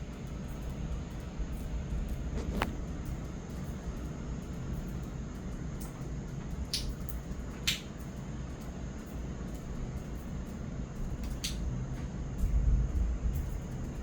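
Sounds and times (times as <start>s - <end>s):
low rumble of thunder: 10.9s - 14.0s.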